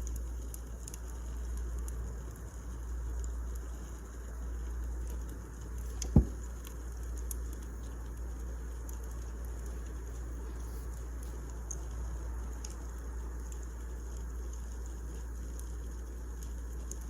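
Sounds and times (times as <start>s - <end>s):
fire low rumble: 0.0s - 17.0s
wood fire crackling: 0.0s - 17.0s
deep thump: 6.1s - 6.4s.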